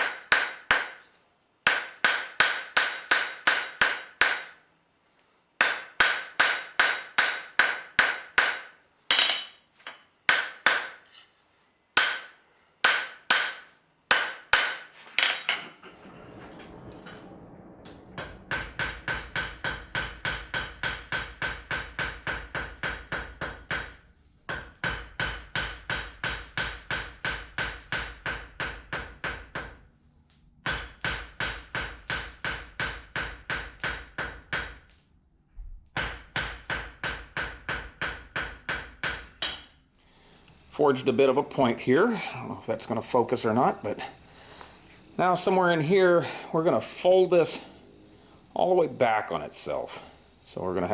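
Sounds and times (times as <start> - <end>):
hammer ringing on anvil: 0.0 - 16.7, 18.2 - 30.0, 30.6 - 35.2, 35.9 - 39.8.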